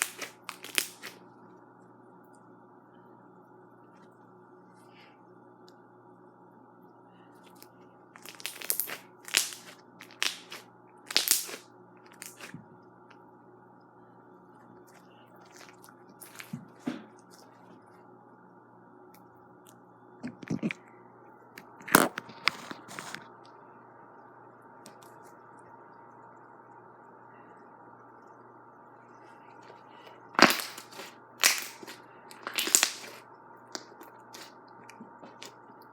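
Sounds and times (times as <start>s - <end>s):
slime crackling and popping: 0.0s - 1.2s, 8.2s - 12.5s, 30.4s - 34.5s.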